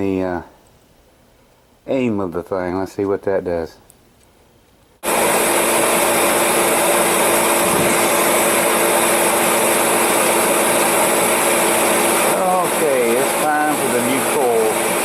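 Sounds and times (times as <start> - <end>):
heater fan whirring: 4.8 - 15.0.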